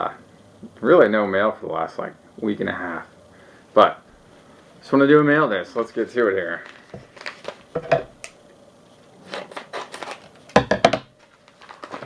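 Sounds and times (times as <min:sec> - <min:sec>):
paper and plastic rustling: 0:05.8 - 0:08.3, 0:08.9 - 0:12.0.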